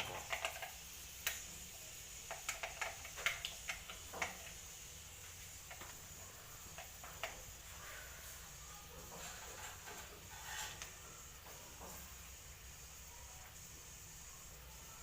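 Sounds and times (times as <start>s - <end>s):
crackles and pops: 0.0s - 7.6s
spices sizzling in hot oil: 0.0s - 15.0s.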